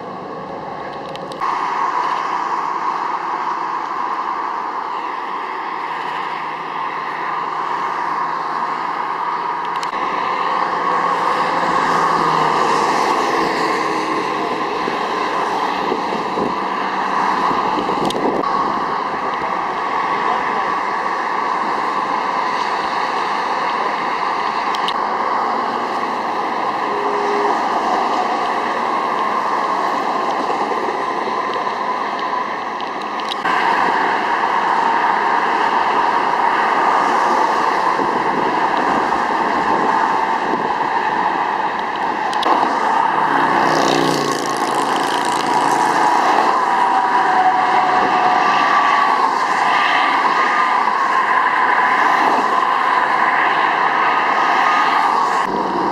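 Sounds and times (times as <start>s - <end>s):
highway traffic noise: 0.0s - 55.9s
vehicle engine passing close: 42.5s - 46.6s.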